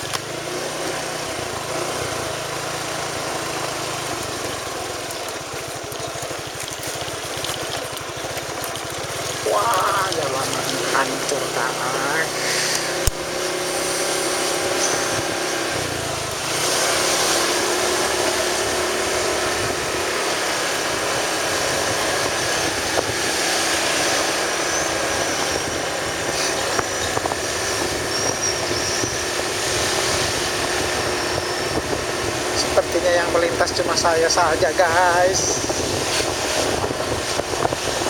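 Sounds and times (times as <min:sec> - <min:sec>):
road noise: 0:00.0 - 0:38.0
vehicle engine running: 0:00.0 - 0:38.0
wind noise: 0:19.2 - 0:38.0.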